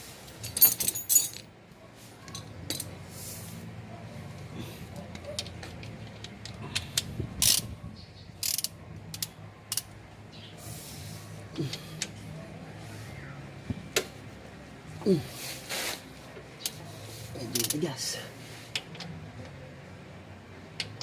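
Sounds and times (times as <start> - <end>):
socket wrench clicking: 6.1 - 7.7, 8.4 - 9.9.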